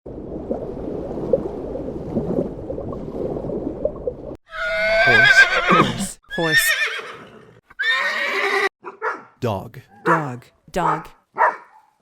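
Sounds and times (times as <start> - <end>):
horse whinnying: 4.5 - 8.7.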